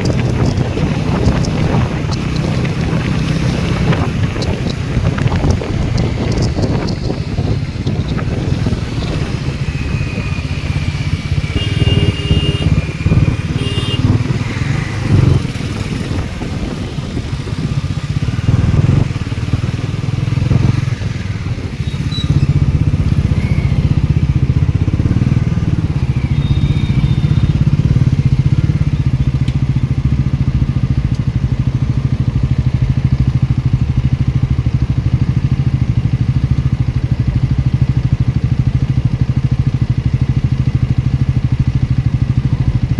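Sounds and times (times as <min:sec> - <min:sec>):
motorcycle engine running: 0:00.0 - 0:42.9
short horn beeps: 0:11.4 - 0:14.5.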